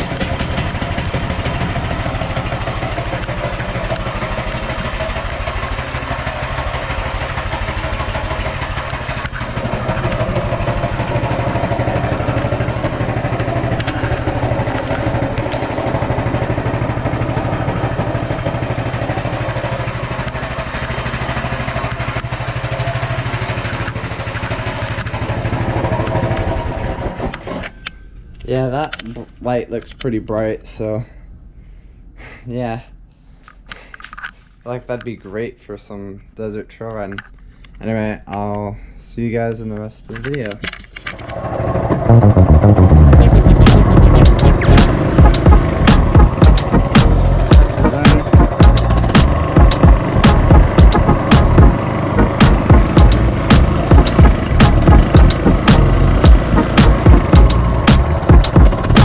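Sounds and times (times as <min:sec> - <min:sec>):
small engine idling: 0:00.0 - 0:27.8, 0:41.1 - 0:59.0.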